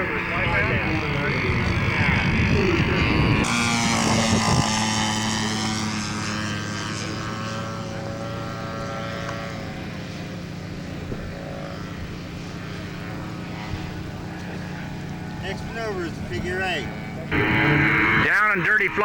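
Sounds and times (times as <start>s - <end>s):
model airplane engine droning: 0.0s - 19.0s.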